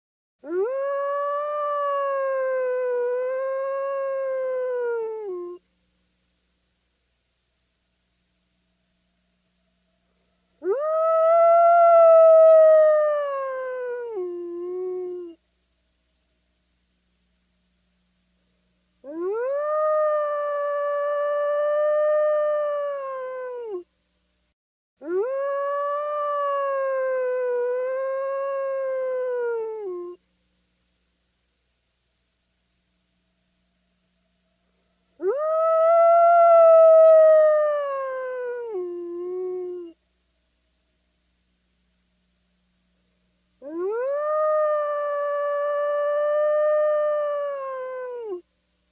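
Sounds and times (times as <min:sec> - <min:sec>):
wolf howling: 0:00.4 - 0:05.6, 0:10.6 - 0:15.4, 0:19.1 - 0:23.8, 0:25.0 - 0:30.2, 0:35.2 - 0:40.0, 0:43.6 - 0:48.4.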